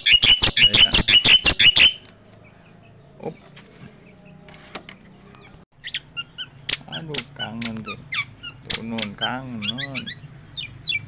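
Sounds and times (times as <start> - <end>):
bird chattering calls: 0.0 - 2.0, 5.8 - 11.0.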